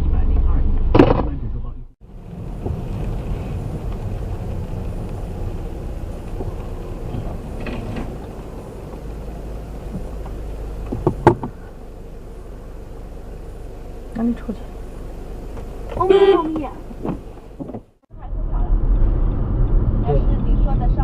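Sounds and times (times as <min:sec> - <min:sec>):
car road and engine rumble: 0:00.0 - 0:21.0
sharp thump: 0:00.9 - 0:01.5, 0:09.9 - 0:11.7.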